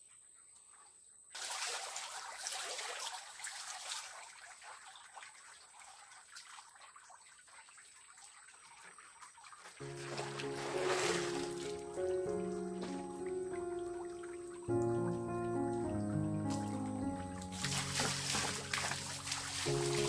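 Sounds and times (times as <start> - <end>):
heavy rain falling: 17.4 - 20.0.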